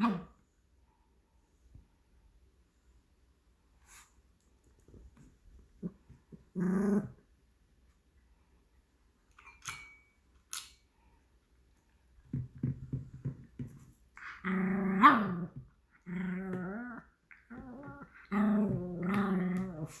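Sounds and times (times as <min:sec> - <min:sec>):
dog growl-whining: 0:05.8 - 0:07.2, 0:14.2 - 0:20.0.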